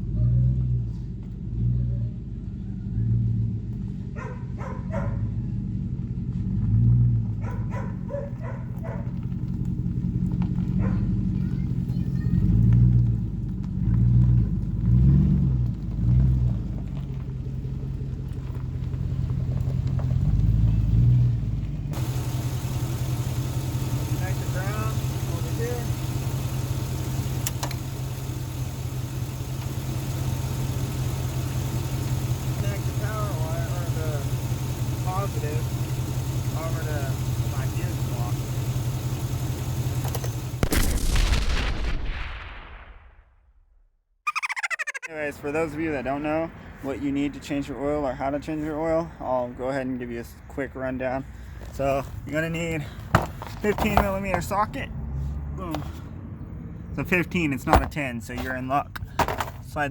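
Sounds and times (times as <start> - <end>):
dog barking: 4.1 - 5.3, 7.4 - 9.2, 10.8 - 11.2
car engine idling: 7.2 - 40.7.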